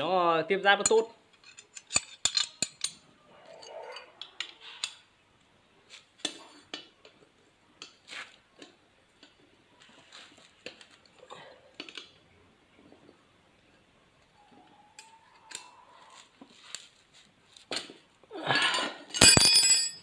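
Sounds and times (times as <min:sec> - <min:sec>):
metal parts and tools clinking: 0:00.8 - 0:05.0, 0:18.6 - 0:20.0.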